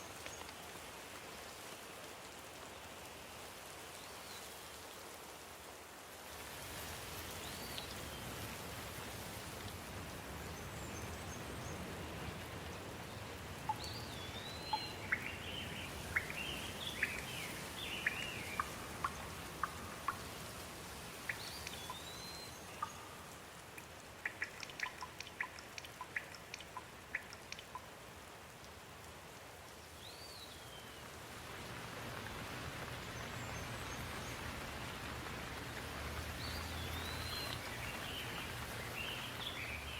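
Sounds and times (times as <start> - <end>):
raindrops tapping close by: 0.0 - 5.3, 6.4 - 39.9
steady rain falling: 0.0 - 39.9.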